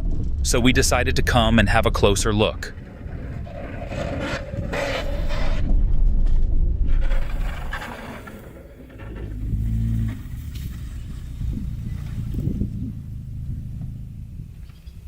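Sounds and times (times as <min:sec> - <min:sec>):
car rumbling over rough ground: 0:00.0 - 0:15.0
scraping noise: 0:02.7 - 0:13.1.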